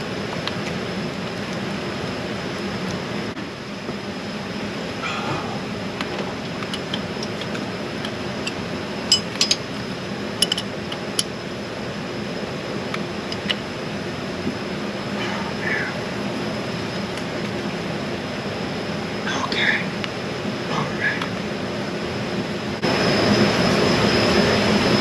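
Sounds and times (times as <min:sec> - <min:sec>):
workshop background hum: 0:00.0 - 0:25.0
metal tools clinking: 0:08.4 - 0:09.7.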